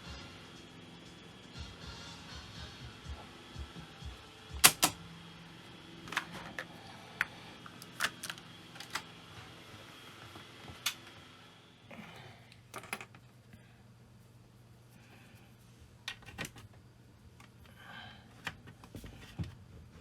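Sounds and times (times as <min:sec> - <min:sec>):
cassette deck clicks and knocks: 0:04.6 - 0:05.0.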